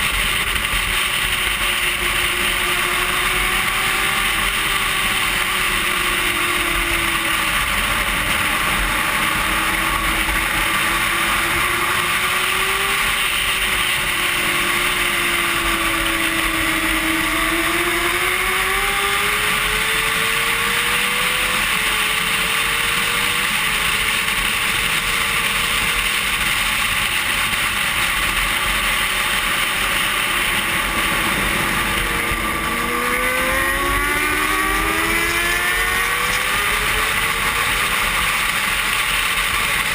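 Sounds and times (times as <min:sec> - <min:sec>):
motorcycle engine revving: 0:00.0 - 0:39.9
wind rushing over microphone: 0:26.4 - 0:38.9.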